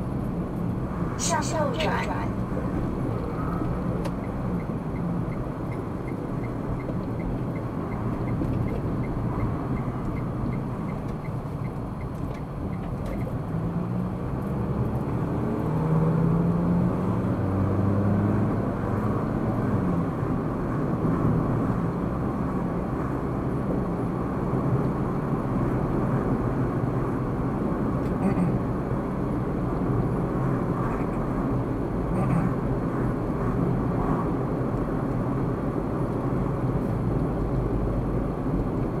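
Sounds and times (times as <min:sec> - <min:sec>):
car engine and tyre noise: 0:00.0 - 0:39.0
turn signal ticking: 0:03.1 - 0:13.6.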